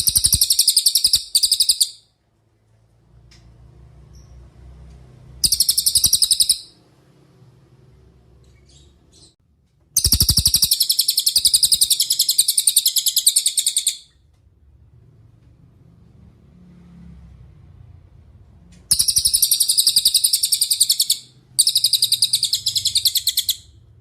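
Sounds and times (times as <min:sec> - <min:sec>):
songbird rattling trill: 0:00.0 - 0:02.0, 0:05.4 - 0:06.8, 0:10.0 - 0:14.1, 0:18.9 - 0:23.7.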